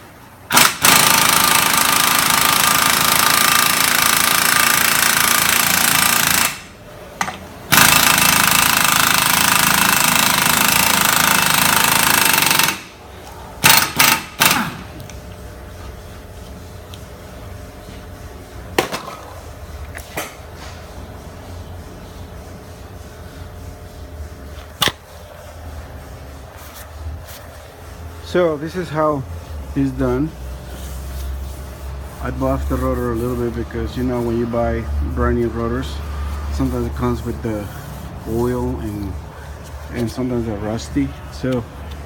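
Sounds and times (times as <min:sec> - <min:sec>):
power tool running: 0:00.5 - 0:06.7, 0:07.7 - 0:12.9, 0:13.6 - 0:15.0.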